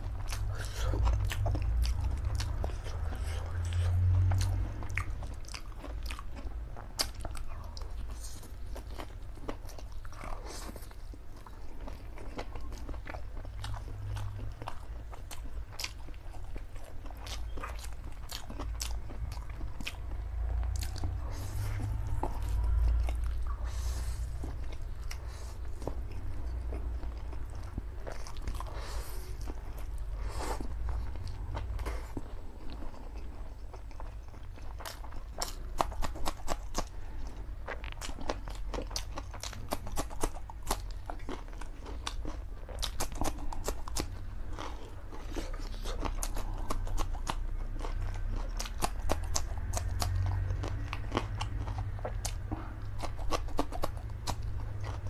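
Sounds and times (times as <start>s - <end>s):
person chewing noodles: 0.0s - 55.0s
low rumble: 16.8s - 34.9s.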